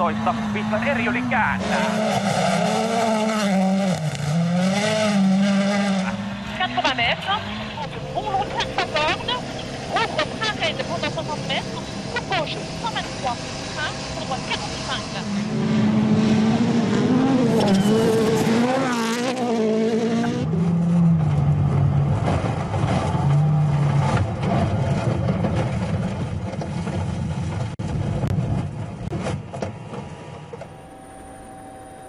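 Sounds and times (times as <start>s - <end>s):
rally car engine revving: 0.0s - 30.1s
rushing noise: 5.9s - 18.7s.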